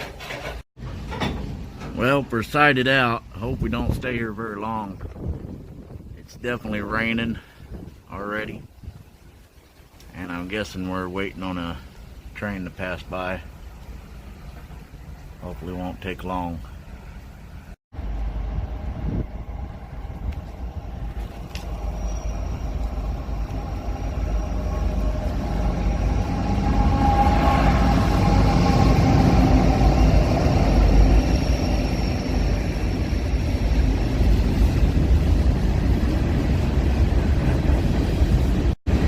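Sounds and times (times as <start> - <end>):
freight train rumbling: 11.7 - 39.0
faint steady squeal: 18.0 - 34.7.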